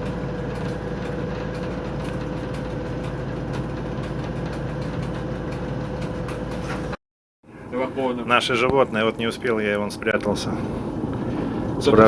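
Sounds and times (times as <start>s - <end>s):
diesel locomotive engine running: 0.0s - 12.0s.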